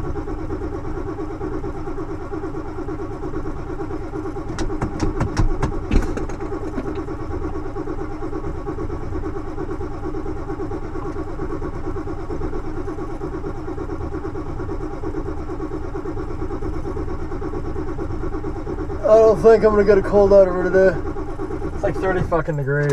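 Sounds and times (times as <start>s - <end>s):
diesel engine idling: 0.0s - 22.9s
sharp engine knocks: 4.4s - 7.1s, 21.9s - 22.9s.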